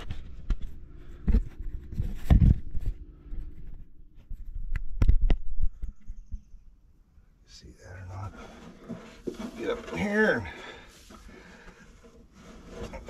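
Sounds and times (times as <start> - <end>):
knocks and scrapes of gear: 8.2 - 13.0.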